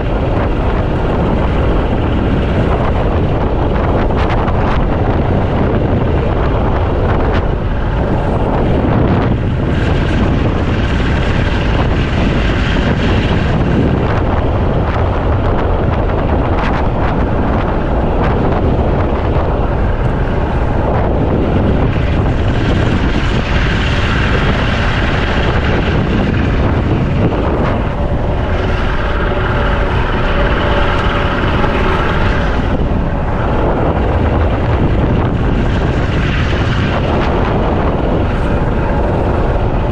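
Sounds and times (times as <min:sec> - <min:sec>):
wind buffeting microphone: 0:00.0 - 0:39.9
motor running: 0:21.6 - 0:39.7.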